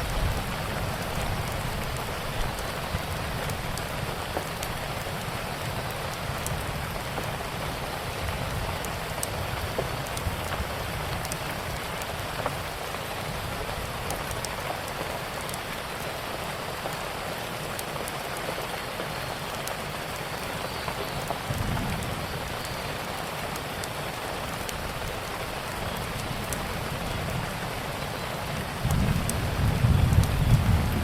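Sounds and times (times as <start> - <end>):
rain falling on a surface: 0.0 - 31.0
wood fire crackling: 0.0 - 31.0.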